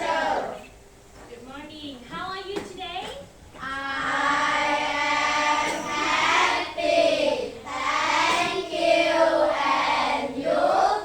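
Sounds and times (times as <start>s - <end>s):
children singing together: 0.0s - 0.7s, 3.6s - 11.0s.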